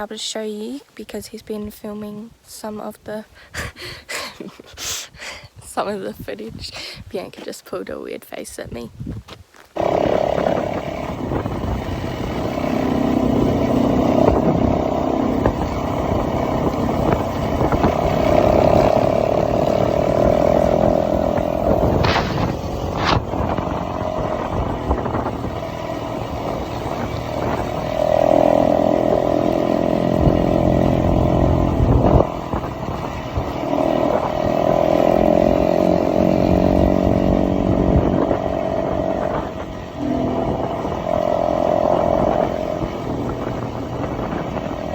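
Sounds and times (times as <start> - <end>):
motorbike engine revving: 9.8 - 44.9.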